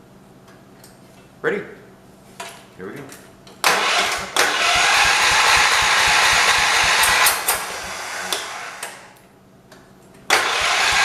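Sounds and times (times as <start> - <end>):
engine cranked by starter: 3.6 - 9.1, 10.3 - 11.0.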